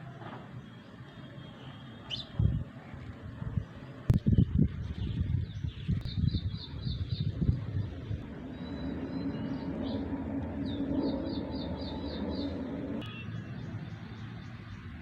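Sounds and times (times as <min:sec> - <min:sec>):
motor vehicle running: 0:07.3 - 0:14.9.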